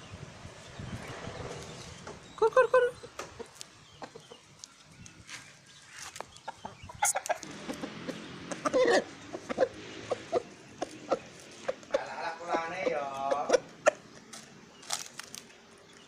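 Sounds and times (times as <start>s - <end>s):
chickens clucking: 2.1s - 16.0s.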